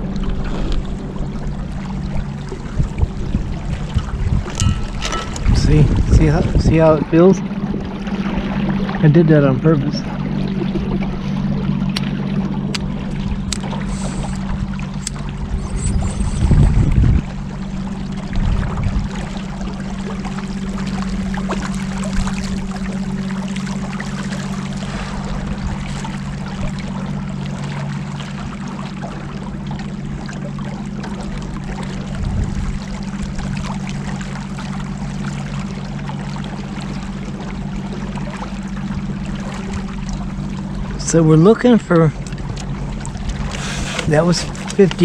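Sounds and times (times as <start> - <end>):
boat knocking on water: 0.0 - 15.6, 16.4 - 45.0
boat motor humming: 0.0 - 45.0
water splashing along hull: 0.0 - 45.0.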